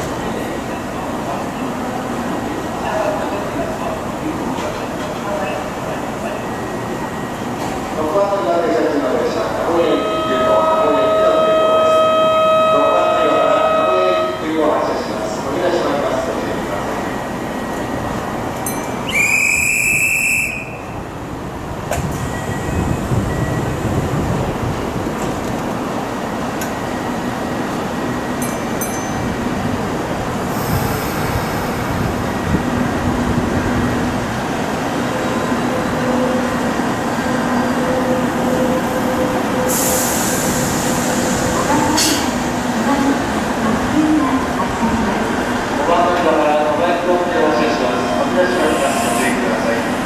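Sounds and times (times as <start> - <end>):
train pulling in: 0.0 - 50.0
train running steadily: 0.0 - 50.0
high electronic tone: 9.8 - 14.6
train hiss: 30.4 - 32.5, 39.6 - 42.6, 48.0 - 50.0.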